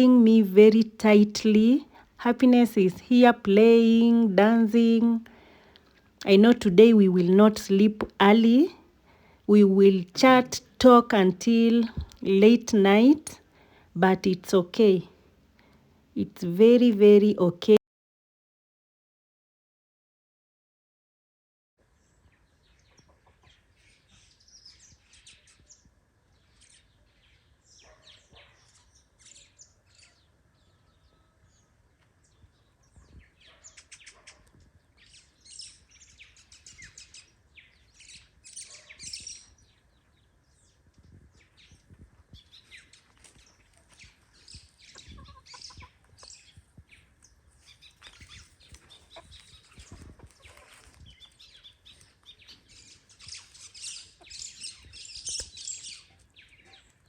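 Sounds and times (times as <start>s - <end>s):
birds chirping: 0.0s - 13.4s, 32.3s - 57.0s.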